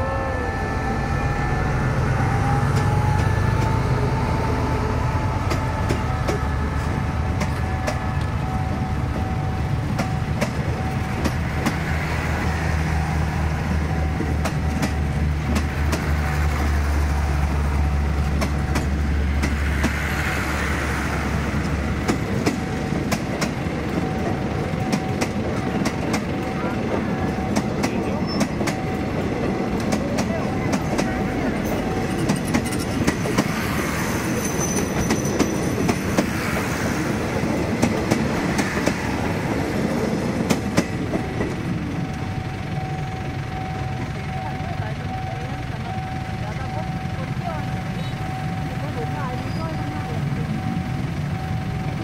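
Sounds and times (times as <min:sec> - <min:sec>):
diesel locomotive engine rumble: 0:00.0 - 0:52.0
wheels clicking over rail joints: 0:05.2 - 0:12.0.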